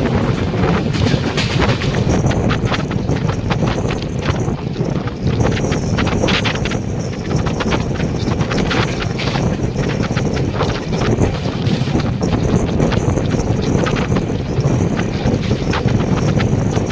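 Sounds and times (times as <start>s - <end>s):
sharp wheel clacks: 0.0s - 2.7s
train wheels rumbling on track: 0.0s - 16.9s
wind rushing over microphone: 0.0s - 16.9s.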